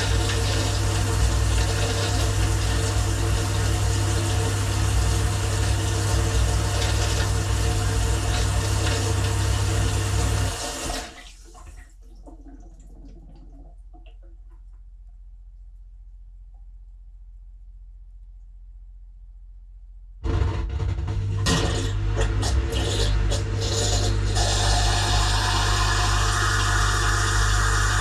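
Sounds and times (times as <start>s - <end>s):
dishwasher pump humming: 0.0s - 13.2s, 20.2s - 28.0s
faint water drips: 11.2s - 16.9s.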